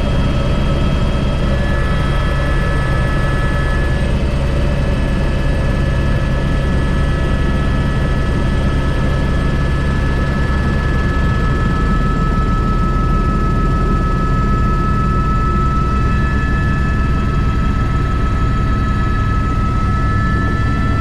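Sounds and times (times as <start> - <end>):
high-pitched whines: 0.0 - 4.7, 11.0 - 21.0
helicopter rotor and engine thrum: 0.0 - 21.0.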